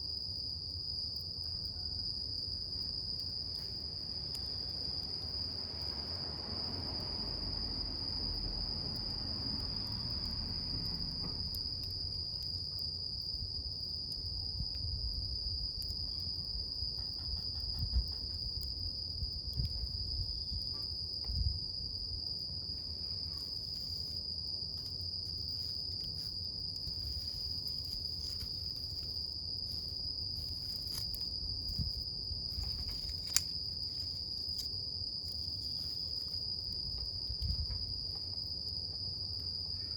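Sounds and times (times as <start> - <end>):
campfire burning: 0.0 - 39.3
insects chirring: 0.0 - 39.9
fire crackling: 8.7 - 17.1, 18.1 - 38.8.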